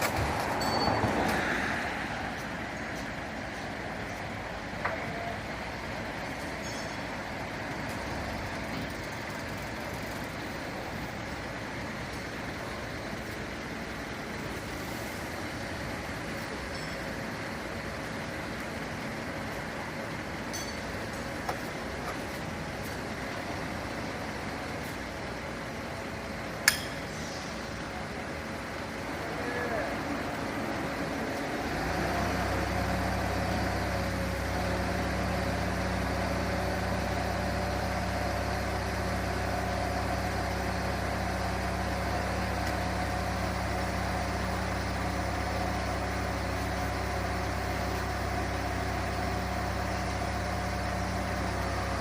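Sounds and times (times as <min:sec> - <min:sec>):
fire truck engines idling: 0:00.0 - 0:52.0
vehicle rumble: 0:00.0 - 0:52.0
sharp metallic clink: 0:20.5 - 0:20.9, 0:26.6 - 0:27.2.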